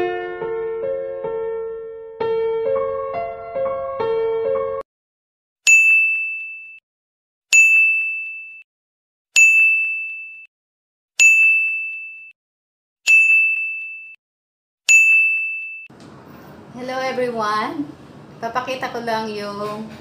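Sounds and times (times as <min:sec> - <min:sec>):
bright bell ding: 0:05.7 - 0:06.8, 0:07.6 - 0:08.6, 0:14.9 - 0:15.9.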